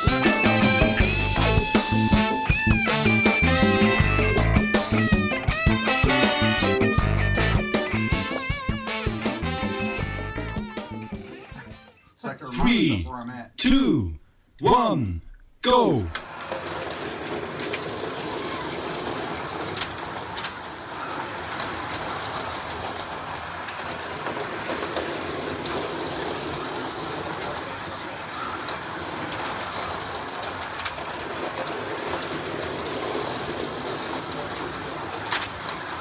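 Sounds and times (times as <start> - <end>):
slot cars whirring and rattling: 16.3 - 36.0.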